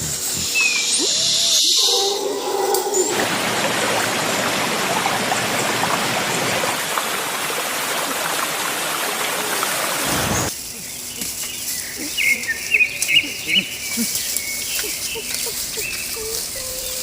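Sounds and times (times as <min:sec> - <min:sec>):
running water rushing: 0:02.1 - 0:10.6.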